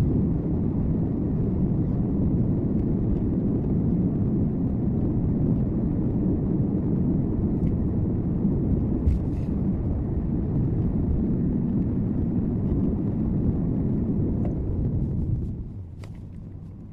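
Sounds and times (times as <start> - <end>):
car road and engine rumble: 0.0 - 16.9.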